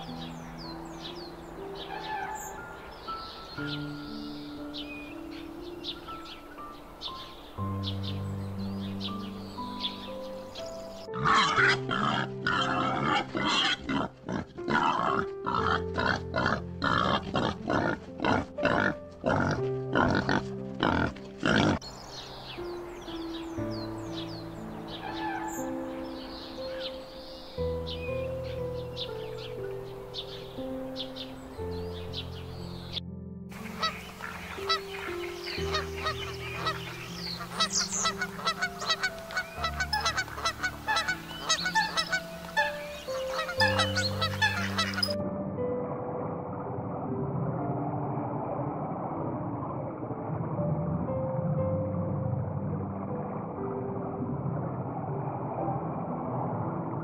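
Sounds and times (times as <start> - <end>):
background music with held notes: 0.0 - 57.0
young boars calling: 1.8 - 2.6, 10.7 - 21.8, 24.8 - 27.2, 33.6 - 45.2
goose honking: 11.2 - 21.8, 33.6 - 45.2.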